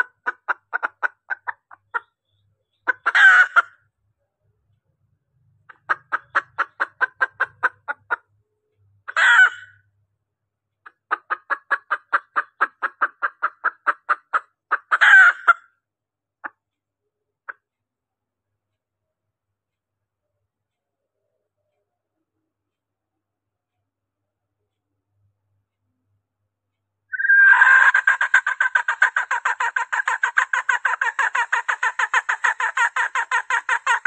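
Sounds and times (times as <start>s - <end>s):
hen clucking: 0.0s - 3.8s, 5.7s - 8.3s, 9.1s - 9.8s, 10.9s - 15.7s, 27.1s - 34.0s
harsh single hen call: 3.0s - 3.7s, 9.1s - 9.8s, 15.0s - 15.6s, 27.1s - 28.3s.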